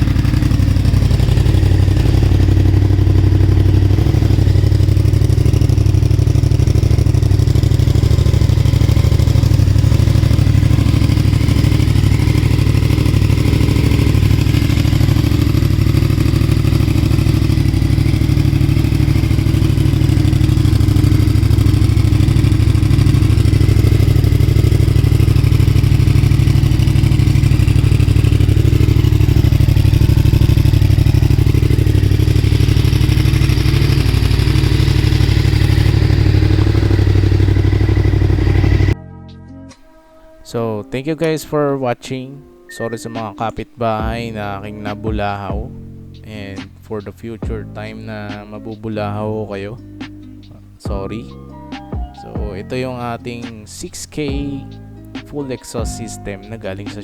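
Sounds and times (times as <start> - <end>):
motorcycle engine idling loudly: 0.0 - 39.0, 44.0 - 45.7, 46.4 - 48.4, 50.8 - 51.2, 54.3 - 54.8, 55.8 - 57.0.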